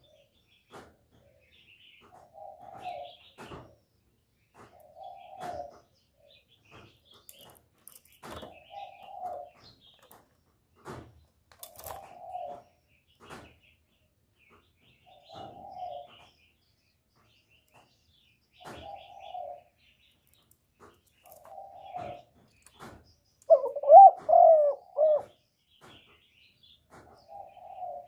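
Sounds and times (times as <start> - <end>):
small birds chirping: 0.0 - 28.0
dove cooing: 2.3 - 3.2, 4.8 - 6.4, 8.6 - 9.6, 11.7 - 12.8, 15.1 - 16.3, 18.7 - 19.7, 21.3 - 22.3, 23.5 - 25.4, 27.2 - 28.0.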